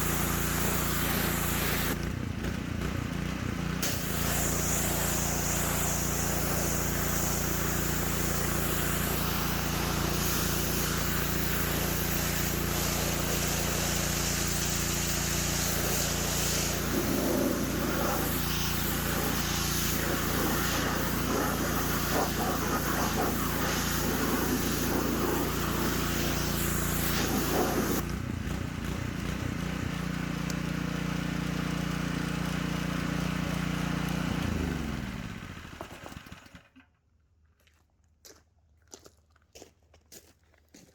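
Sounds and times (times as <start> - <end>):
water spray hissing: 0.0 - 2.0, 3.8 - 28.0
engine winding down: 0.0 - 36.9
small engine running: 0.0 - 36.9.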